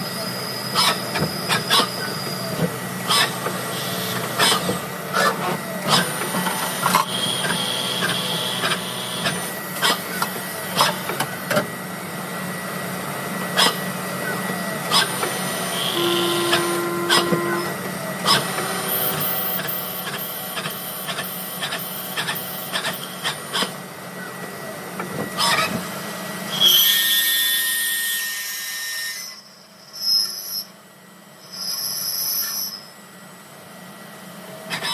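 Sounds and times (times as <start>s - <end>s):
lathe spindle humming: 15.1s - 17.8s.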